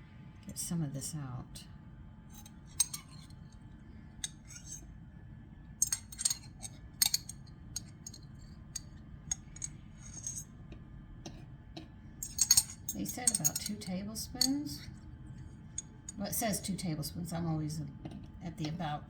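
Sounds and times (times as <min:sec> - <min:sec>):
metal spoon clinking on glass: 0:02.4 - 0:03.3, 0:05.8 - 0:10.5, 0:12.2 - 0:14.9.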